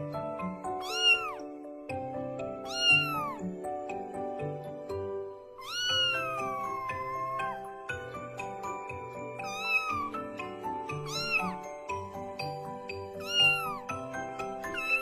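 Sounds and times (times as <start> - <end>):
background music: 0.0 - 15.0
cat meowing: 0.8 - 1.5, 2.6 - 3.4, 5.6 - 7.6, 9.4 - 10.2, 10.9 - 11.6, 13.2 - 13.9, 14.7 - 15.0.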